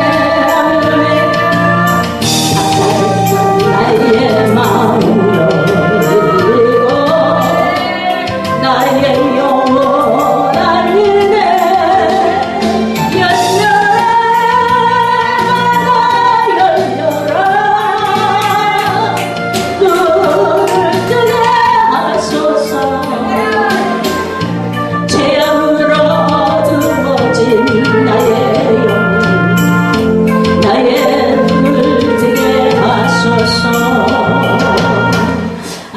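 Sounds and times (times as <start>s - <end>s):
band accompaniment with beat: 0.0s - 35.9s
person singing praise song: 19.8s - 24.2s.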